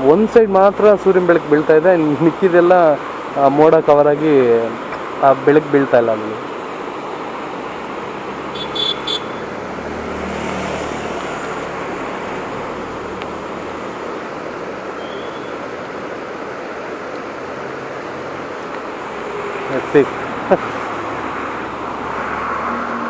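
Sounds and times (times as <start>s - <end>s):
wind and road noise: 0.0s - 23.0s.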